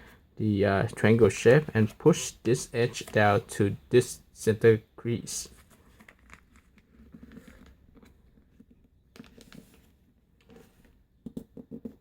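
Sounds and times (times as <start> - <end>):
paper rustling and creasing: 5.5 - 10.9.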